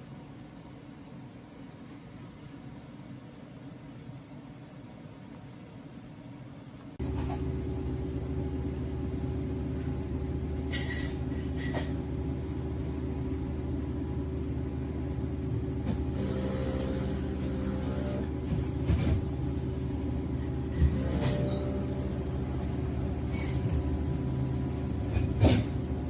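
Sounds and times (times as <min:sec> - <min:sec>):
espresso machine humming: 0:07.0 - 0:26.0.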